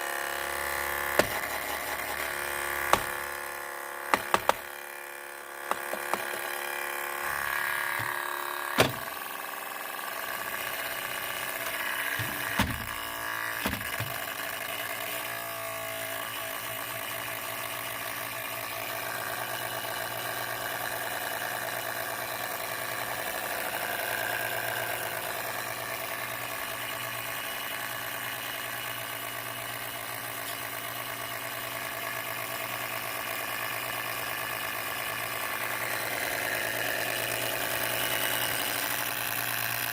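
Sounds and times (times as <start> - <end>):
laptop cooling fan whirring: 0.0 - 33.2
sharp knocks: 4.1 - 4.6.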